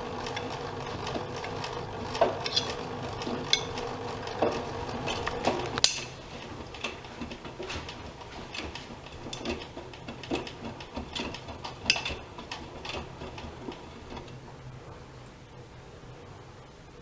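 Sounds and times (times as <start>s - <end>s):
washing machine humming: 0.0s - 17.0s
washing machine clicks and knocks: 3.5s - 14.3s.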